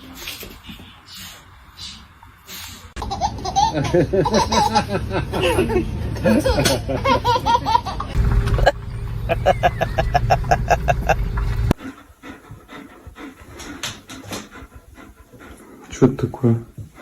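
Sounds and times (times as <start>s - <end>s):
dog panting: 0.0s - 17.0s
low steady rumble: 3.4s - 11.8s
soft breathing: 11.7s - 17.0s.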